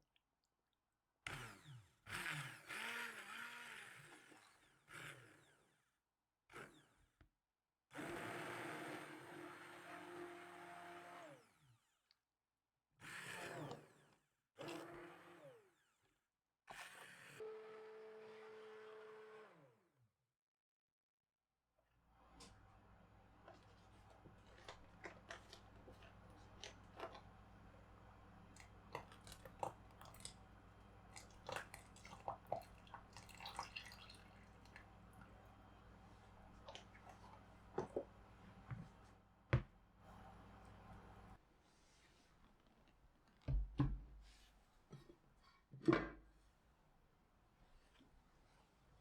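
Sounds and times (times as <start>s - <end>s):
electric blender motor: 1.3s - 5.9s, 6.5s - 7.1s, 7.9s - 12.0s, 13.0s - 16.0s, 16.7s - 20.0s.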